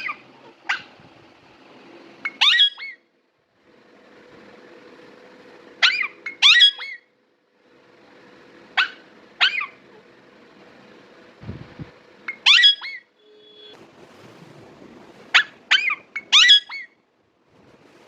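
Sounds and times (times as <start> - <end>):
parrots squawking: 0.0 - 0.9, 2.2 - 3.0, 5.8 - 7.1, 8.8 - 9.8, 12.3 - 13.1, 15.3 - 17.0.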